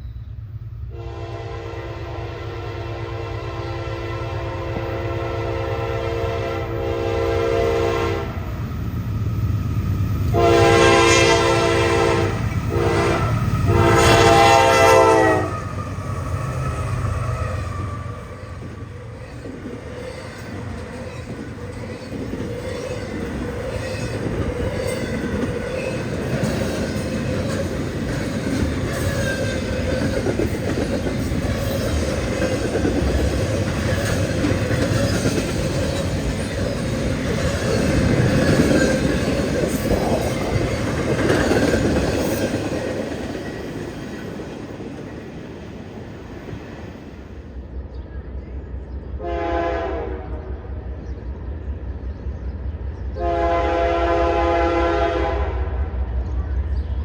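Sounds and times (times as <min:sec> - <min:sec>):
train rumbling past: 0:00.0 - 0:57.0
locomotive air horn blasts: 0:00.9 - 0:08.5, 0:10.3 - 0:15.7, 0:49.2 - 0:50.5, 0:53.2 - 0:56.0
wheels clacking over rail joints: 0:15.5 - 0:46.8.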